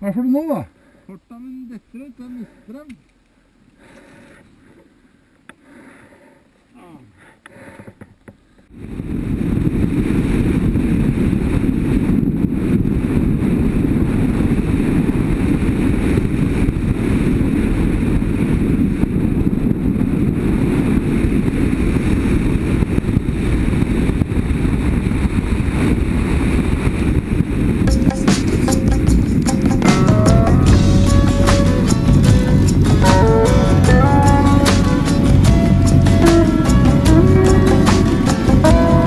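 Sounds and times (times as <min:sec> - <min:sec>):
wind rushing on microphone: 0:08.8 - 0:28.0
motorcycle engine: 0:27.9 - 0:39.0.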